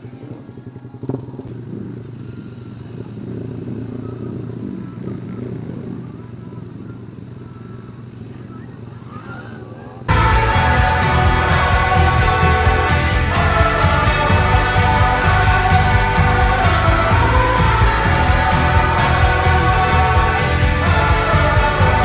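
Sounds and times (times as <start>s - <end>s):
motorcycle idling: 0.0s - 22.0s
loud music: 10.1s - 22.0s.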